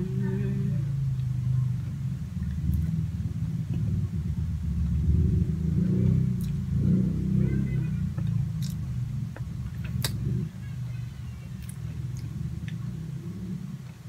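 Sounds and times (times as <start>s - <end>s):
low rumbling drone: 0.0s - 14.0s
mouth clicks: 9.4s - 10.2s.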